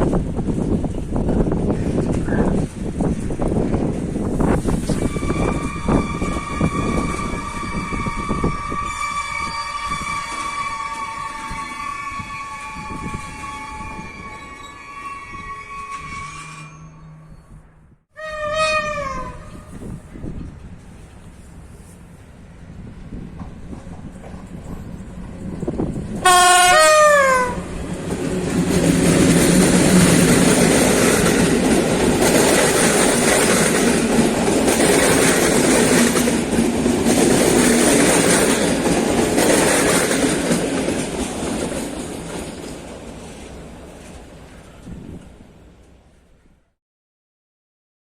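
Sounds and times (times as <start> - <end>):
wind noise on microphone: 0.0 - 14.6, 17.4 - 42.4, 44.8 - 45.6
train rumbling: 0.0 - 46.4
train horn: 4.9 - 17.3, 18.1 - 20.3, 26.2 - 27.7
train wheels clattering over rails: 23.2 - 26.3, 27.7 - 45.4.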